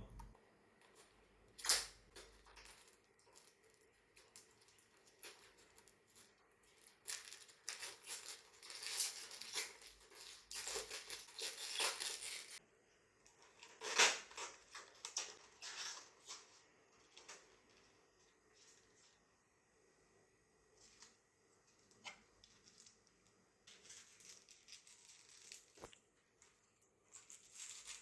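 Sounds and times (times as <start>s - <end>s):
rustling of objects being handled: 0.0s - 12.6s, 13.2s - 19.5s, 20.6s - 28.0s.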